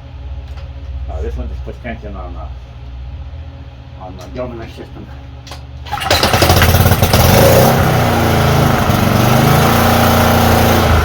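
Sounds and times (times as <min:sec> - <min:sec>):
pressure washer engine running: 0:05.9 - 0:11.0.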